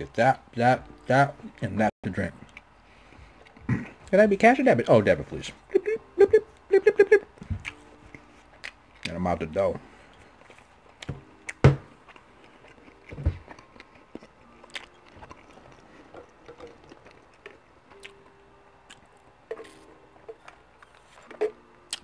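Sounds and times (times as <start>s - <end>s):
chewing breadsticks: 7.6s - 9.4s, 10.1s - 22.0s.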